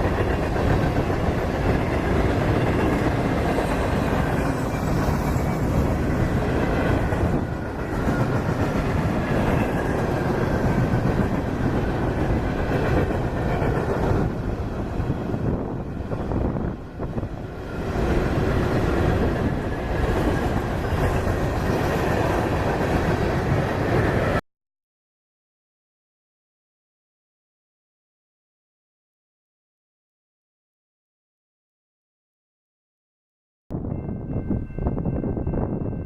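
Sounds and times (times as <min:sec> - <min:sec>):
freight train rumbling and rattling: 0:00.0 - 0:24.4, 0:33.8 - 0:36.0.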